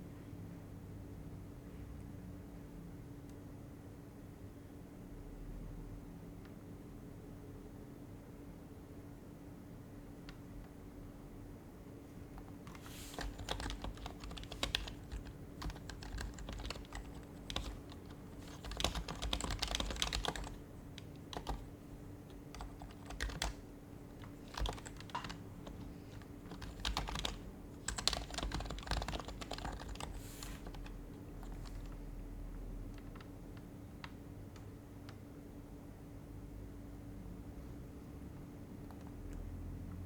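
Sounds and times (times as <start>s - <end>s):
keyboard typing: 12.4s - 32.0s, 32.9s - 35.2s.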